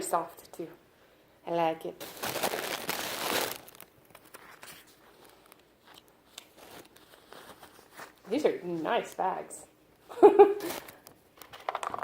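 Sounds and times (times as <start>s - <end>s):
packaging crinkling: 2.0s - 8.3s, 10.6s - 12.0s.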